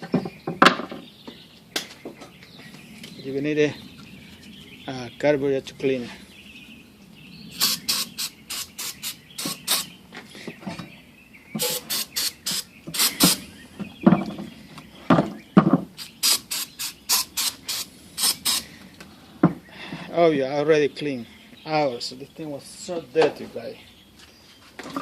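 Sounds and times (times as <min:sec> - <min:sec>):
rasping scrubbing strokes on metal: 0:11.6 - 0:13.4.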